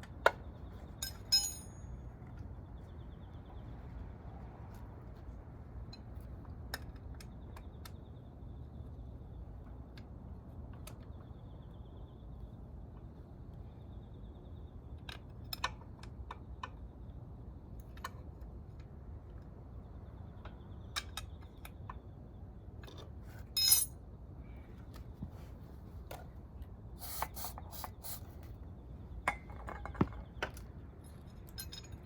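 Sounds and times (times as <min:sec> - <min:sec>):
metallic clinks of hand tools: 0:01.0 - 0:01.8, 0:23.6 - 0:23.9.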